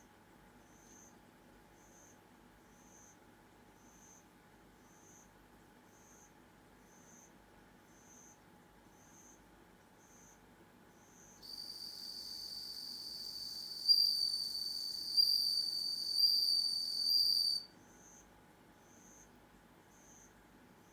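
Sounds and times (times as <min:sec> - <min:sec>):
cricket ringing trill: 0:11.4 - 0:17.7.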